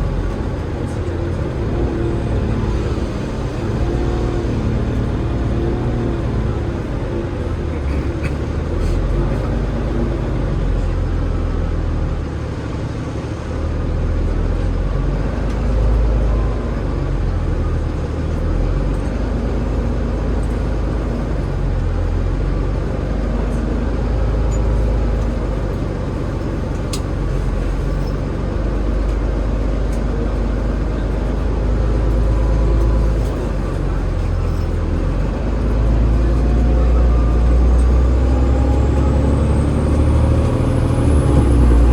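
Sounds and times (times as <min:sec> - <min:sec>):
bus diesel engine rumble: 0:00.0 - 0:41.9
rising whine: 0:36.2 - 0:41.9.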